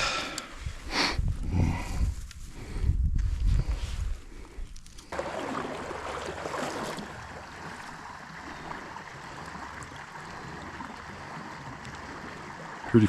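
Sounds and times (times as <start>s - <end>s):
creek water running: 5.1s - 13.0s.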